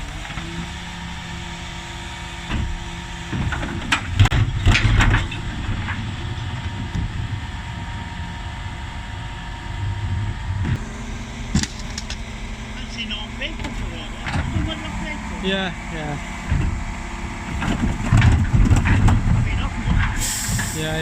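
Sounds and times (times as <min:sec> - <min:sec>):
lorry engine running: 0:00.0 - 0:21.0
knocks and clatter: 0:03.3 - 0:07.2, 0:16.4 - 0:20.8.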